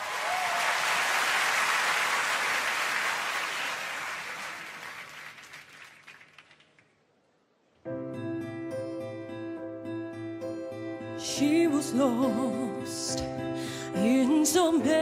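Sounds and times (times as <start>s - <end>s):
audience applause: 0.0s - 7.0s.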